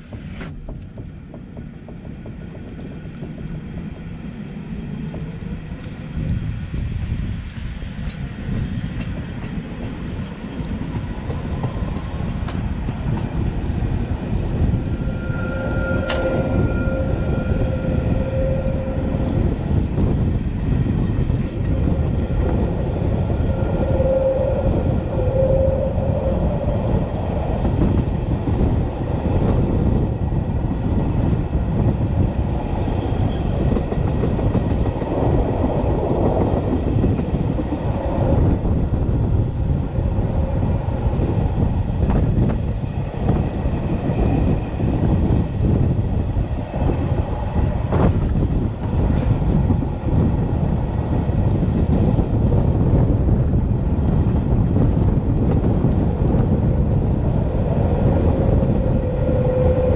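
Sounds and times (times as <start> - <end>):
train wheels rumbling on rail: 0.0 - 59.9
pitched tone: 14.9 - 19.7.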